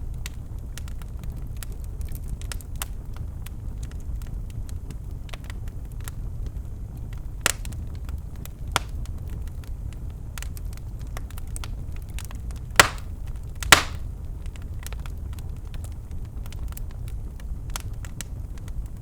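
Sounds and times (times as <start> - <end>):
wood fire crackling: 0.0 - 19.0
loud fire pops: 7.2 - 18.9.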